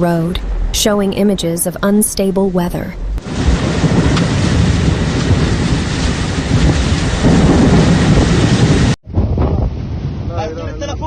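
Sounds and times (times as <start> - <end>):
wind: 0.0 - 11.0
heavy rain: 3.2 - 9.0.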